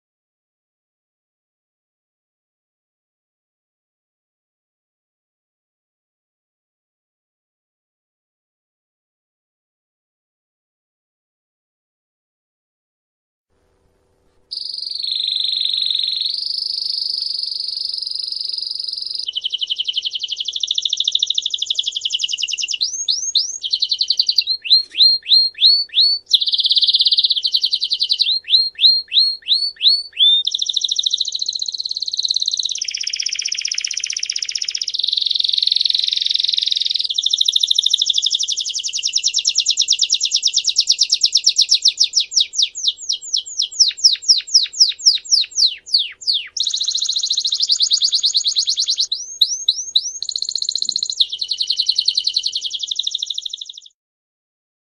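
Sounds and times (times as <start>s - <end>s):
songbird trilling song: 14.5s - 54.0s.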